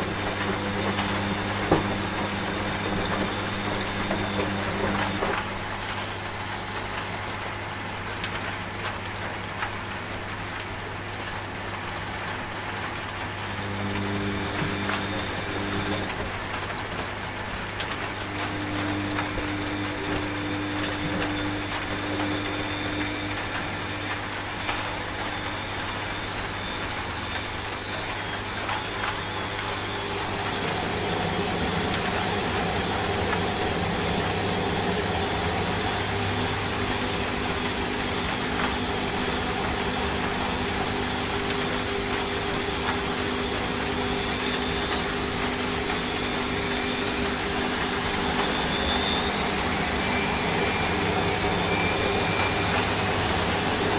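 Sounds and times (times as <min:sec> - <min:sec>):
rain hissing: 0:00.0 - 0:53.9
washing machine running: 0:00.0 - 0:53.9.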